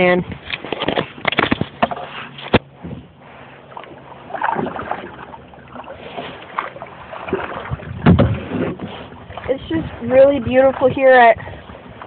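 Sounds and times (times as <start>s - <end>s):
water lapping against kayak: 0.0s - 12.0s
loud water splashes: 3.7s - 12.0s.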